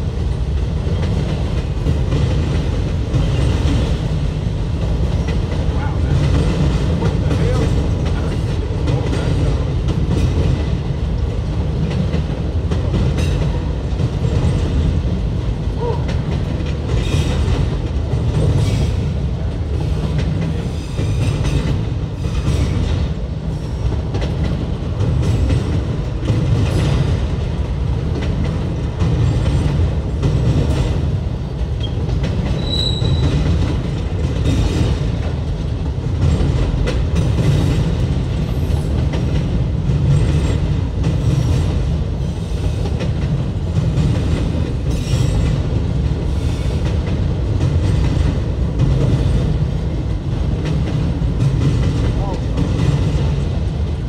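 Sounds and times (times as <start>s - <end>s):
freight train rumbling past: 0.0s - 54.0s
wheels clacking over rail joints: 0.3s - 54.0s
high squeal: 32.6s - 33.3s.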